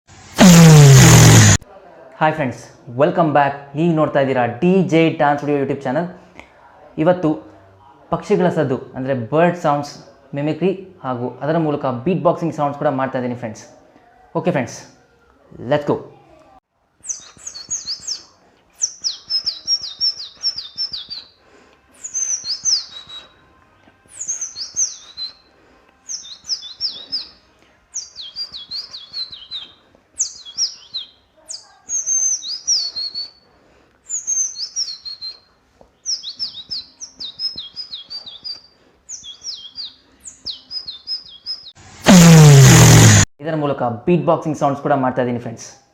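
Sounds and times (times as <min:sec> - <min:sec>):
person mimicking birdsong: 0:00.4 - 0:01.6, 0:41.9 - 0:43.3.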